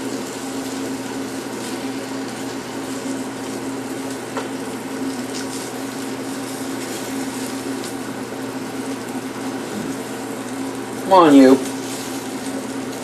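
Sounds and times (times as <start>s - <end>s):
liver sizzling in fat: 0.0s - 13.0s.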